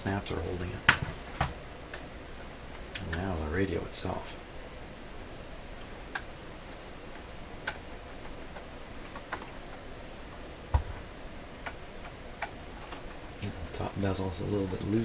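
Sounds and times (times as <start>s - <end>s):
heavy thump: 10.7s - 11.1s.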